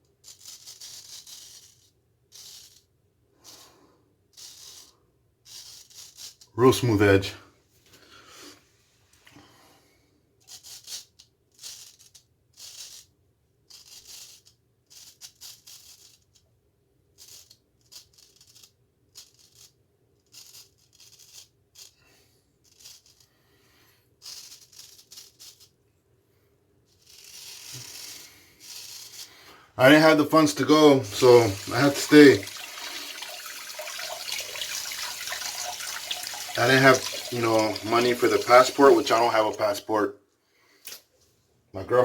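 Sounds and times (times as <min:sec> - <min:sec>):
razor scraping stubble: 0:27.0 - 0:39.8.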